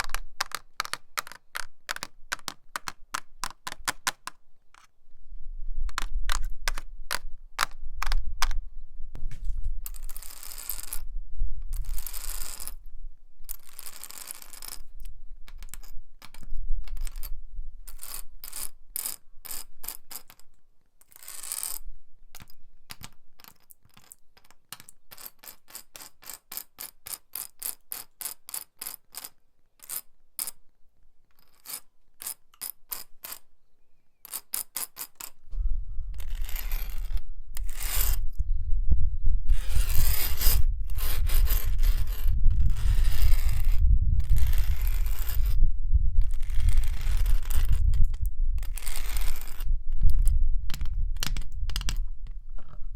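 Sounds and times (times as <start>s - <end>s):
metal nails tapping a wall: 0.0s - 4.9s, 5.9s - 8.6s
nails scraping a wall: 0.0s - 4.9s, 5.9s - 8.6s, 17.9s - 30.6s, 36.2s - 38.4s, 39.5s - 45.6s, 46.2s - 52.9s.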